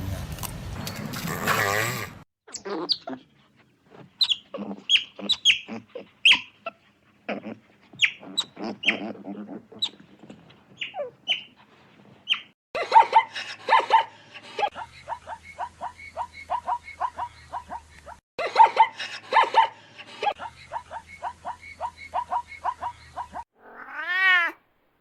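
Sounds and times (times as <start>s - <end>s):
animal giving short high calls: 4.2s - 6.6s.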